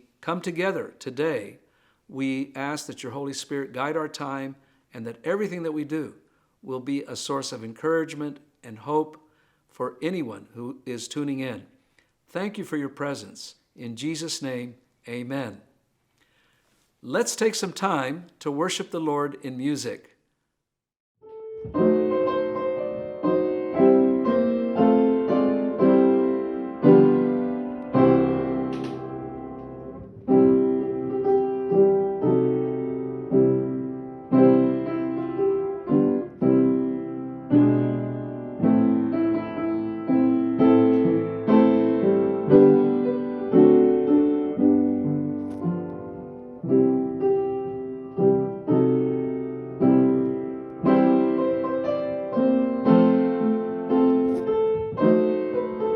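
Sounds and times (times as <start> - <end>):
slow piano chords: 21.2 - 55.9.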